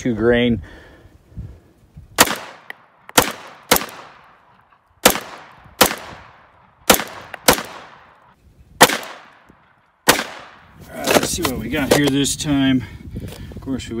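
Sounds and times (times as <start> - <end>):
handgun shots with echo: 2.2 - 4.2, 5.0 - 6.2, 6.9 - 8.0, 8.8 - 9.4, 10.1 - 10.6.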